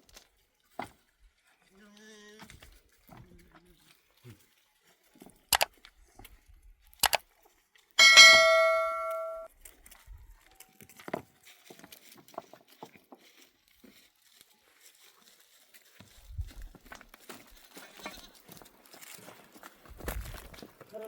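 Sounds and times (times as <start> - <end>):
metal object ringing: 8.0 - 9.5.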